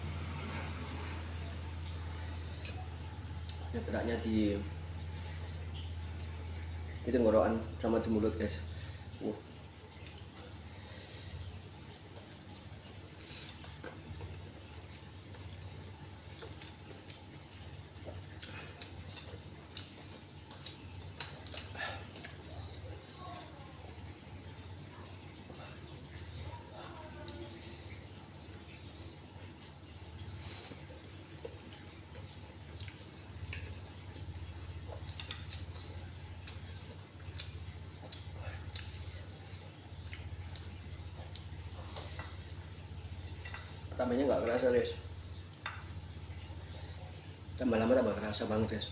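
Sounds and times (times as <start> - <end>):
person chewing noodles: 0.1 - 7.1, 8.7 - 26.6, 27.3 - 44.0.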